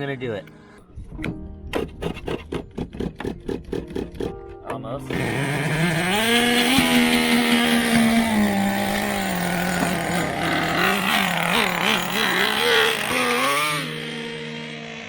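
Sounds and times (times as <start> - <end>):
small nitro engine revving: 5.1 - 15.0.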